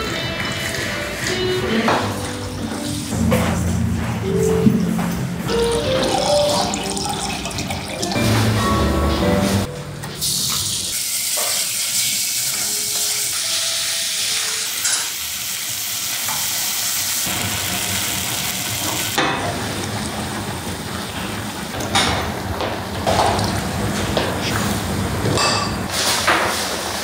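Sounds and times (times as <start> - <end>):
food sizzling in hot oil: 10.4 - 19.6.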